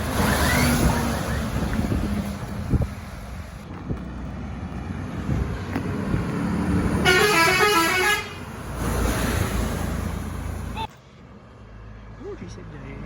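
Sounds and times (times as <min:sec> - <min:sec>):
truck engine and road noise: 0:00.0 - 0:13.0
musical air horn: 0:07.0 - 0:08.4.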